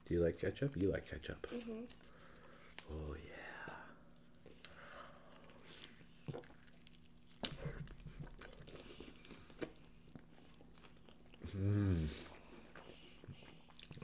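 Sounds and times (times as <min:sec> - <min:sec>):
chewing and biting food: 0:05.2 - 0:11.4, 0:12.2 - 0:14.0
low voice hum: 0:11.4 - 0:12.4.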